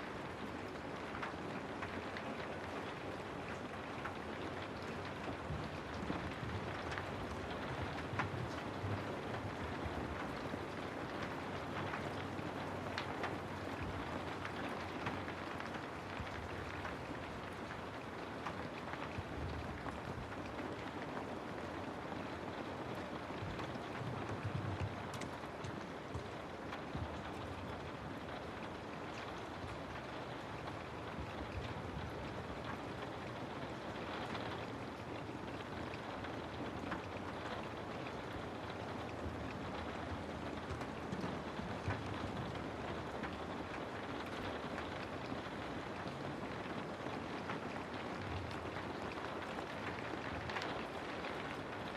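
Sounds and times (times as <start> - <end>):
steady rainfall: 0.0 - 51.9.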